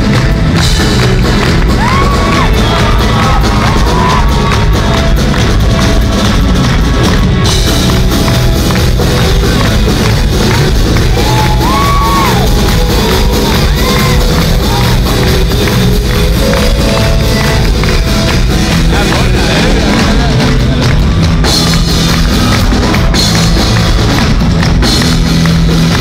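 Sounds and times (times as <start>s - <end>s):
crowd shouting and cheering: 0.0s - 26.0s
rock band playing: 0.0s - 26.0s
person singing: 16.4s - 21.1s.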